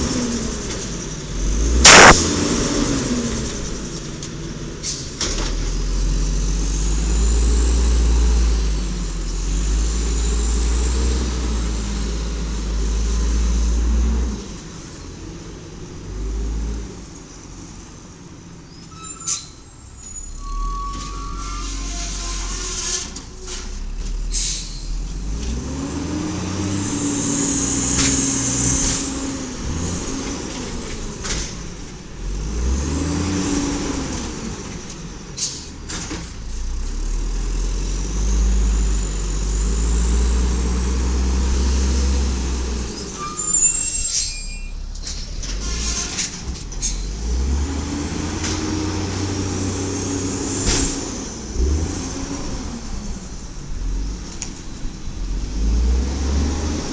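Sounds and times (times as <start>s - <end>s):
garbage truck engine revving: 0.0s - 15.0s, 20.0s - 43.2s, 45.4s - 56.9s
air brake hiss: 24.3s - 25.0s.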